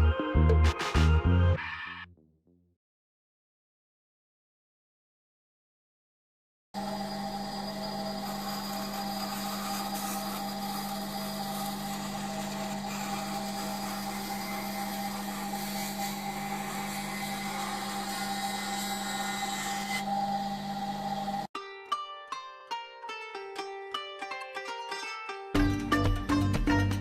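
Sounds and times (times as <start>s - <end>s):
electric power tool running: 6.8s - 21.5s.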